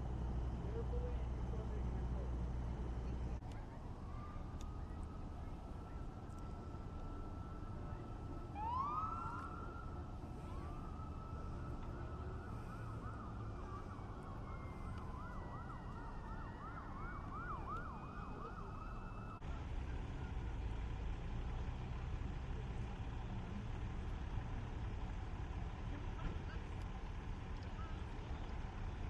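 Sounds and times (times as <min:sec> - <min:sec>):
low steady rumble: 0:00.0 - 0:29.0
emergency siren wailing and yelping: 0:03.9 - 0:19.4.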